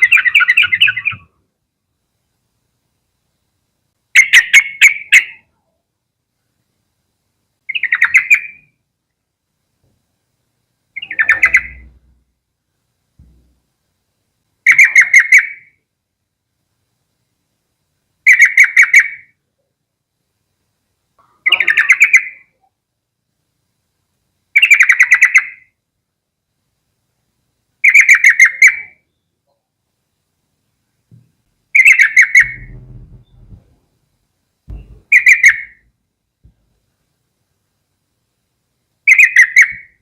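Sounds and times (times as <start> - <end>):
bird chattering calls: 11.0 - 12.1, 34.7 - 35.8.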